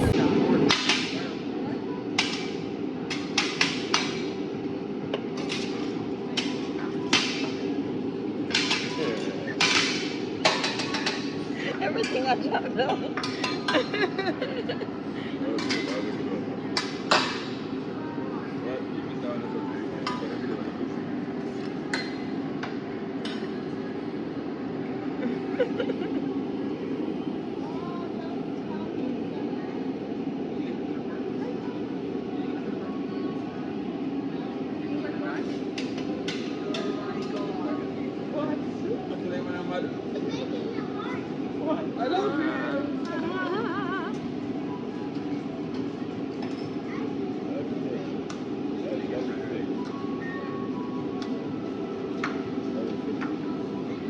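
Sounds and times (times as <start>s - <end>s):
hubbub of diners: 0.0s - 54.0s
restaurant background noise: 0.0s - 54.0s.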